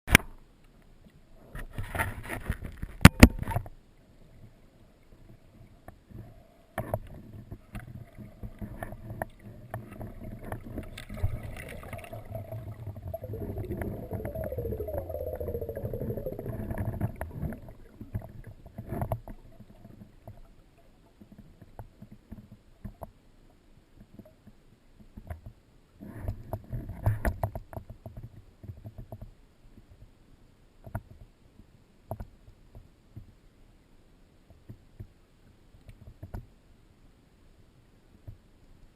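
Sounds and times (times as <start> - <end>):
muffled underwater rumbling: 7.2 - 20.5.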